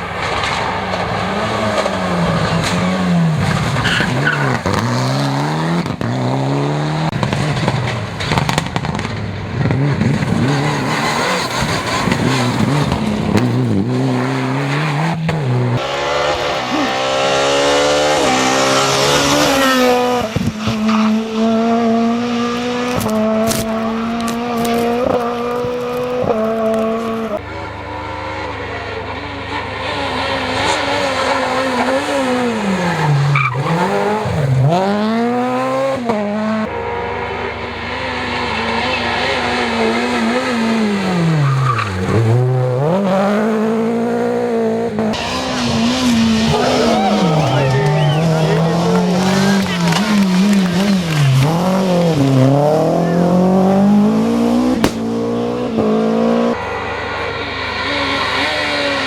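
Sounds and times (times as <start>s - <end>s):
rally car engines revving: 0.0s - 59.0s
tyres squealing: 10.2s - 15.8s, 45.1s - 53.8s.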